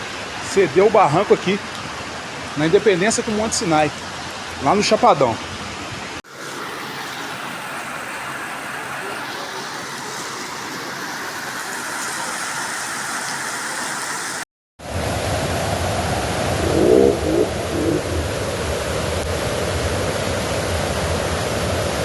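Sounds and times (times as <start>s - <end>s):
flowing water: 0.0s - 14.5s, 16.3s - 19.4s
heavy rain: 6.2s - 14.4s
short pitched sound: 16.5s - 18.6s.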